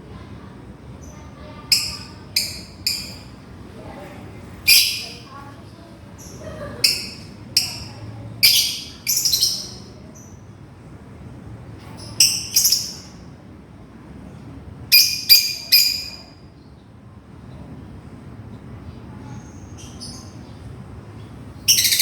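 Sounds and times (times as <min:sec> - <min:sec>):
lovebird shrill calls: 0:01.7 - 0:03.3, 0:04.7 - 0:05.2, 0:06.9 - 0:09.8, 0:12.2 - 0:13.1, 0:21.7 - 0:22.0.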